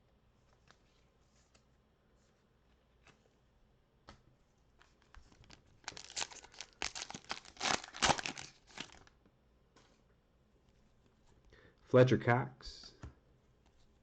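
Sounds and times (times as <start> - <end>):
foil wrapper tearing and crinkling: 5.4 - 9.1.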